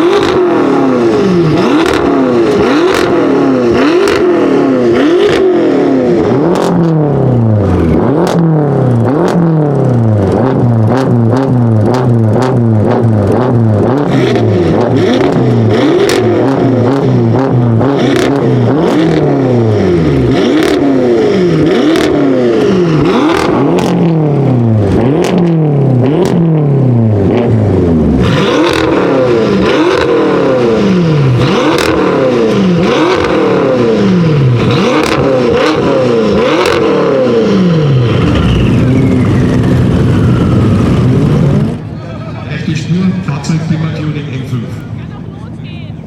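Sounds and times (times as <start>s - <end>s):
car engine revving in blips: 0.0s - 41.9s
exhaust cracks: 21.5s - 41.9s.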